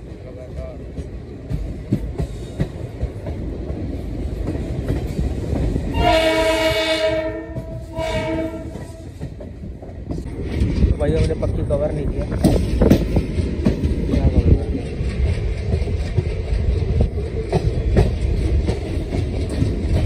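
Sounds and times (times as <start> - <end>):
train coaches rumbling: 0.0 - 20.0
locomotive horn blasts: 5.9 - 9.0.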